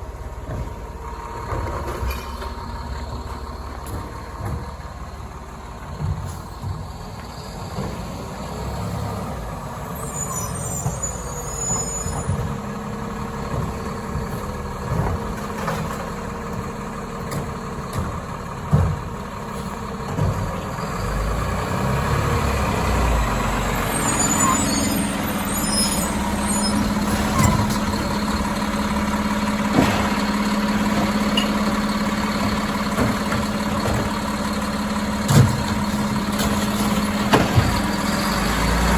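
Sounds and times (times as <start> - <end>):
garbage truck diesel engine: 0.0 - 38.9
high hissing or squealing: 24.0 - 27.5.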